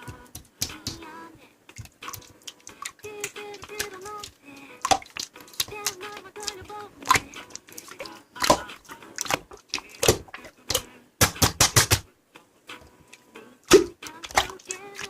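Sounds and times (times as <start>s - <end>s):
slime squishing wet clicks: 1.8s - 10.8s, 13.7s - 15.0s.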